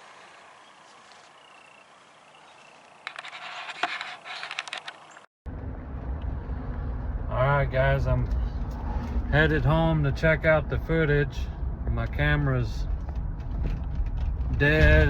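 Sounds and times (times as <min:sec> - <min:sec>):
vehicle engine and road rumble: 0:00.0 - 0:15.0
gear rustling and scraping: 0:02.5 - 0:07.1, 0:12.8 - 0:15.0.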